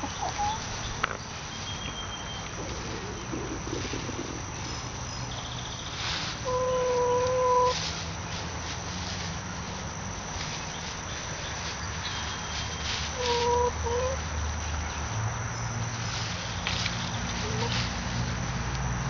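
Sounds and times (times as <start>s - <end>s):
hens calling: 0.0s - 1.1s, 2.4s - 7.9s, 12.3s - 14.3s, 17.3s - 18.0s
steady low rumble: 0.0s - 19.0s.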